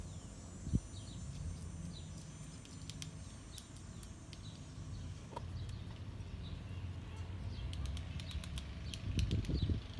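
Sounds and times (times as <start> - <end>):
small birds chirping: 0.0 - 9.9
woodpecker pecking at wood: 1.3 - 4.5, 7.6 - 9.6.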